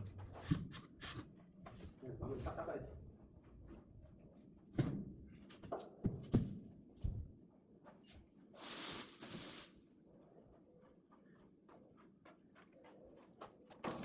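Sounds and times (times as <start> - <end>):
rustling scrape: 8.1 - 9.9.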